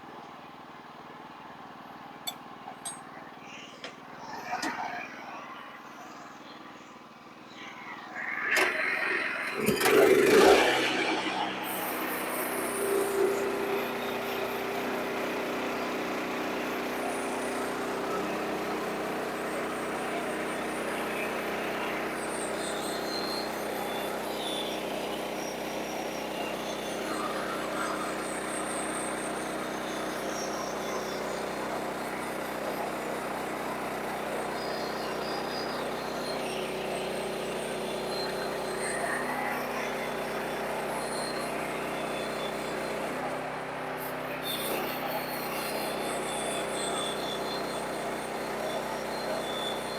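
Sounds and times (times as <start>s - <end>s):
dense mechanical noise: 0.0s - 49.9s
sawmill engine drone: 0.0s - 49.9s.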